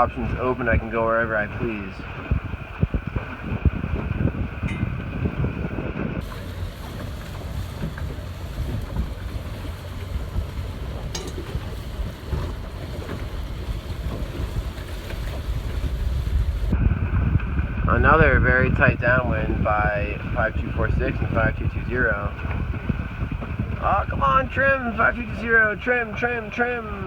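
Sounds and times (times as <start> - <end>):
wind buffeting microphone: 0.0 - 27.0
steady hiss: 6.2 - 10.0.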